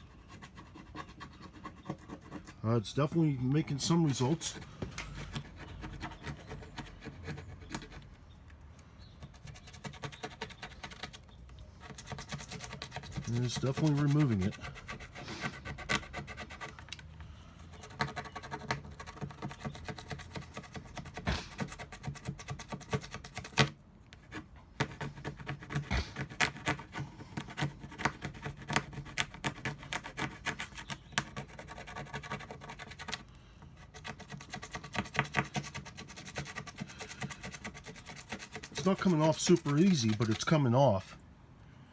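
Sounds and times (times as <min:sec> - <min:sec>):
plastic scraper scraping: 0:11.9 - 0:17.0, 0:17.9 - 0:33.2, 0:33.8 - 0:40.7.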